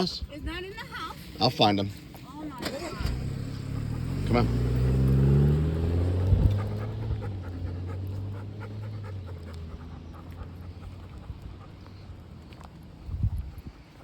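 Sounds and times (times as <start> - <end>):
passing vehicle engine hum: 1.3 - 14.0
dog panting: 5.9 - 14.0.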